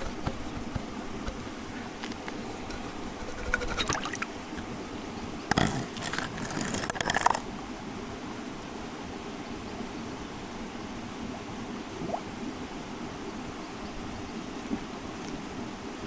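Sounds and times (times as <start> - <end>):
clicking and scraping handling noise: 0.0 - 4.7, 5.5 - 7.7
water running from a line: 0.0 - 4.7, 5.5 - 7.7.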